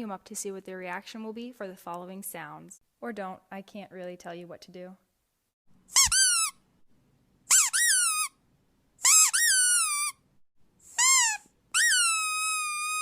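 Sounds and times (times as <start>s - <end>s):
squeaky dog toy squeaking: 5.9s - 6.6s, 7.5s - 8.4s, 9.0s - 10.2s, 10.9s - 13.0s.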